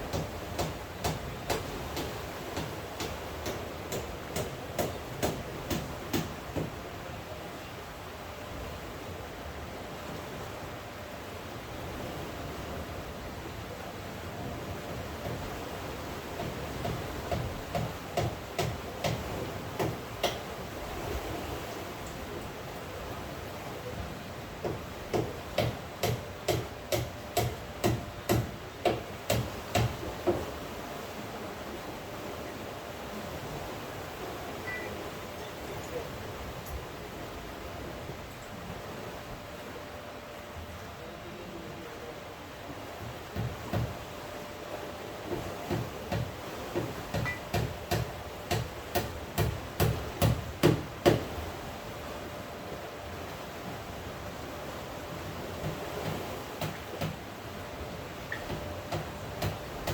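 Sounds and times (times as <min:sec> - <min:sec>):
sharp knocks: 0:00.1 - 0:06.7, 0:24.6 - 0:30.5
dull knocks with sharp clicks: 0:00.1 - 0:06.8, 0:16.4 - 0:20.5, 0:24.6 - 0:30.5, 0:43.0 - 0:44.0, 0:45.3 - 0:51.3, 0:55.6 - 0:57.2, 0:58.3 - 0:59.9.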